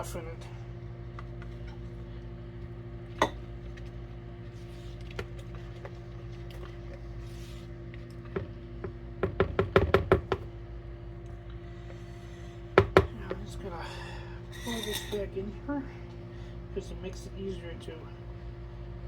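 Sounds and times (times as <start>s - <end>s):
low appliance hum: 0.0s - 19.0s
utensil knocking against container: 12.8s - 13.4s.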